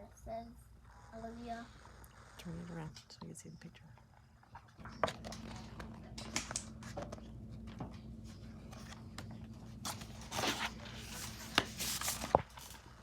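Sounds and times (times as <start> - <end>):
low room hum: 0.0 - 13.0
paper rustling: 4.8 - 13.0
pages swishing: 9.7 - 12.9.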